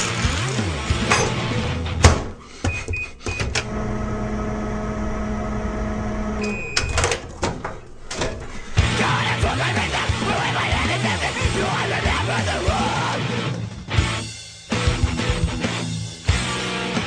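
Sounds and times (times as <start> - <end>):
microwave humming: 0.5 - 9.6
keypad beeps: 2.6 - 3.6, 6.4 - 7.1
microwave beep: 2.6 - 4.5, 6.2 - 7.1.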